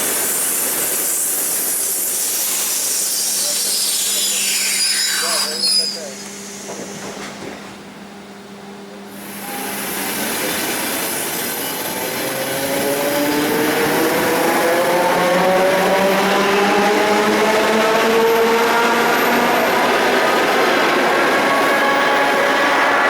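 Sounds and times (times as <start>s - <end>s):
electric train motor whine: 4.9s - 23.0s.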